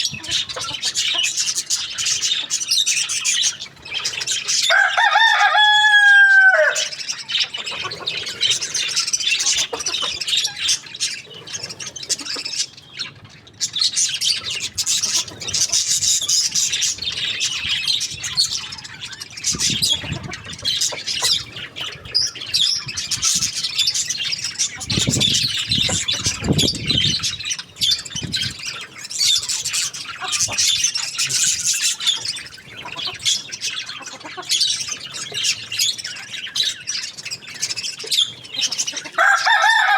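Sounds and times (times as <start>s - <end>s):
small birds chirping: 0.0s - 39.9s
rooster crowing: 4.6s - 7.0s, 39.2s - 39.9s.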